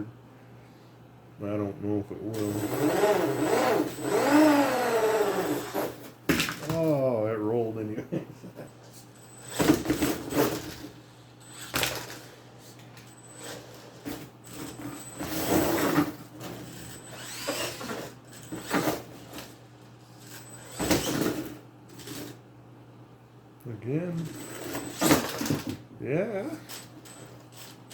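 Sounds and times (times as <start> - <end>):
toy truck motor: 2.4 - 6.0, 16.6 - 19.0.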